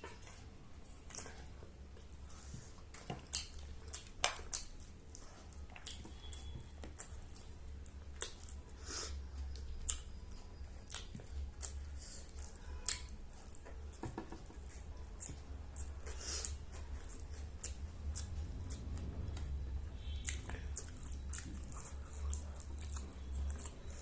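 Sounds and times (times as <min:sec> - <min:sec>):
person chewing food: 0:00.0 - 0:24.0
wet mouth clicks and smacks: 0:02.9 - 0:04.8.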